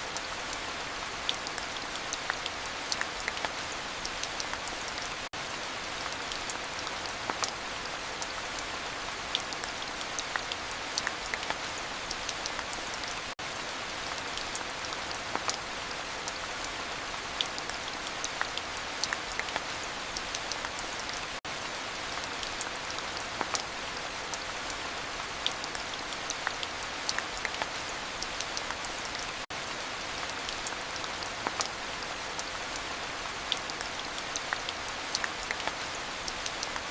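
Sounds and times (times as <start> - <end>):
heavy rain: 0.0 - 36.9.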